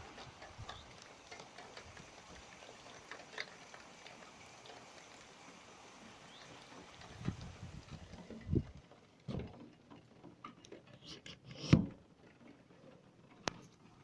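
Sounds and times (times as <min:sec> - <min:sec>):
heavy rain hiss: 0:00.0 - 0:09.0
rain drop ticks: 0:00.0 - 0:10.9, 0:12.2 - 0:14.0.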